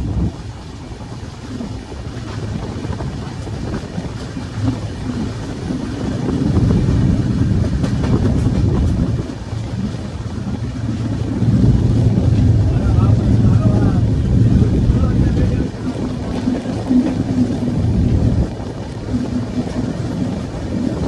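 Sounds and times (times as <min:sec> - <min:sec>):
train rumbling on track: 0:00.0 - 0:21.0
sharp track clacks: 0:04.6 - 0:17.8.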